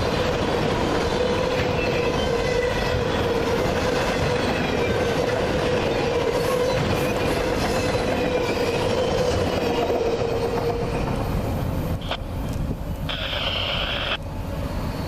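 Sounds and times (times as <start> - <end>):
train wheels rumbling on rails: 0.0 - 15.0
high whine: 13.1 - 14.2.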